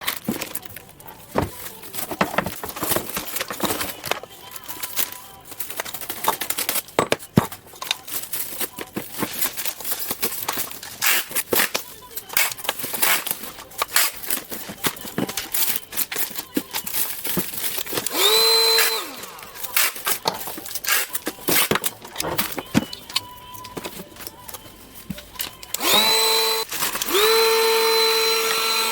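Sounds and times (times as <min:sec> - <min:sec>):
small electric motor whining: 0:18.0 - 0:20.2, 0:25.7 - 0:28.9.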